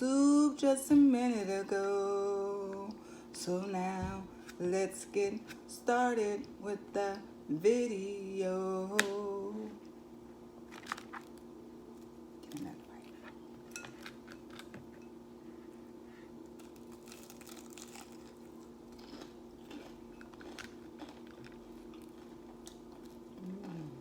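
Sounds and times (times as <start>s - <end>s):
steady low hum: 0.0s - 24.0s
person chewing and crunching: 16.5s - 24.0s.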